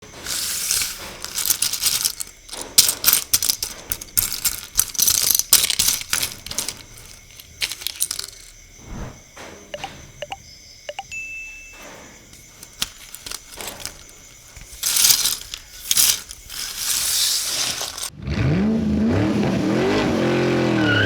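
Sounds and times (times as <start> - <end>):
plastic bricks clattering: 0.0 - 8.6, 12.3 - 18.1.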